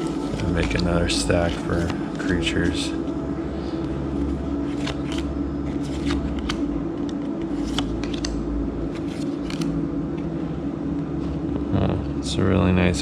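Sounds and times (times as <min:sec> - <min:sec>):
steady background hum: 0:00.0 - 0:13.0
card snaps and slides: 0:04.7 - 0:09.8.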